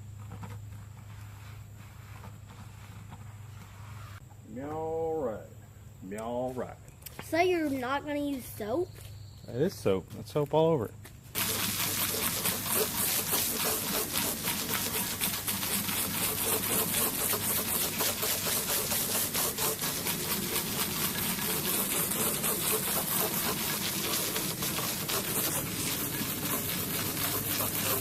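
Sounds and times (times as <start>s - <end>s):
brush scrubbing steel wheel: 11.4s - 28.0s.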